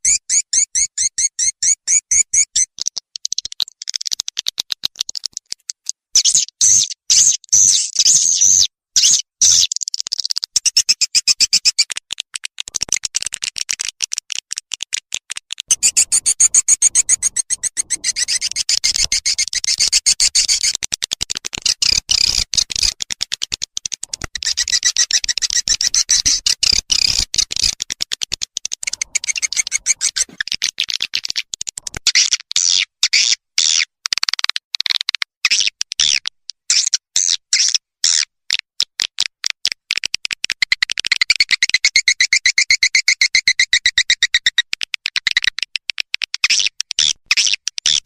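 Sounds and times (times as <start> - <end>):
swiftlets twittering: 15.7 - 20.7, 28.8 - 30.4.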